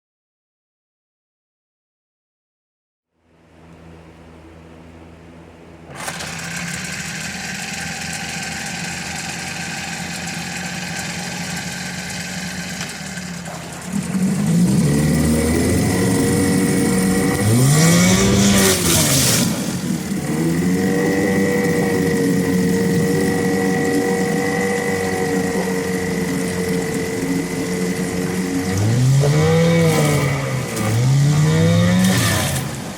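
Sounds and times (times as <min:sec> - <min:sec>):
outboard motor starting and running: 0:03.2 - 0:32.9.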